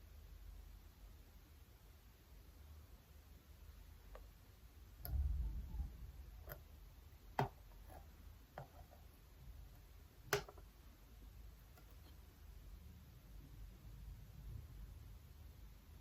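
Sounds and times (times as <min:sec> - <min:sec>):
makeup containers clicking on desk: 0:10.3 - 0:10.7.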